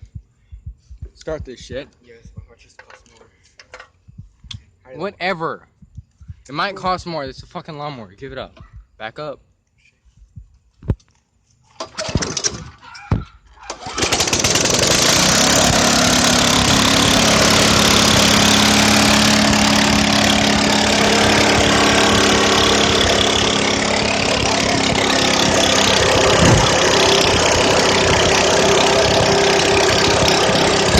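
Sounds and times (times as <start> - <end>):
lawn mower engine running: 11.8 - 12.7, 13.7 - 30.9.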